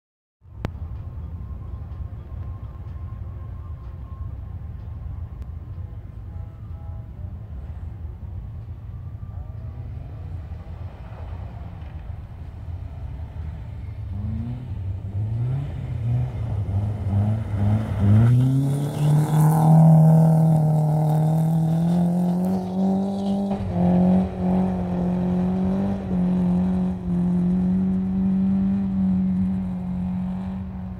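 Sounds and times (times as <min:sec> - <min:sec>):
car engine revving hard: 0:14.2 - 0:30.9.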